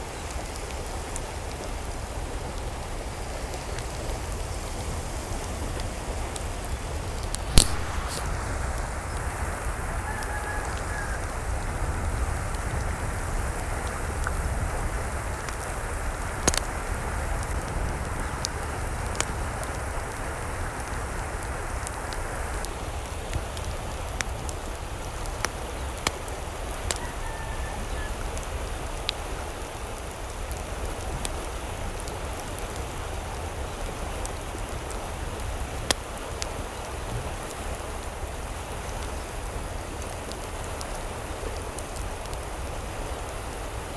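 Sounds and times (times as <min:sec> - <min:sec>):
steady water noise: 0:00.0 - 0:43.9
sharp ticks and drips: 0:00.2 - 0:27.2.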